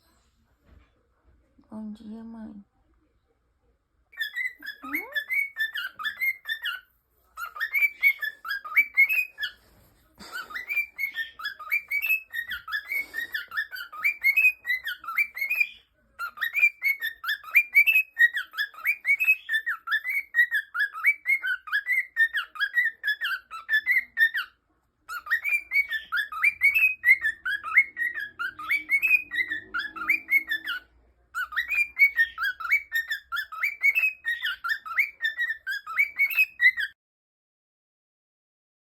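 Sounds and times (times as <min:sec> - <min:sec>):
cockatiel whistling and warbling: 0:04.2 - 0:06.8, 0:07.4 - 0:37.0.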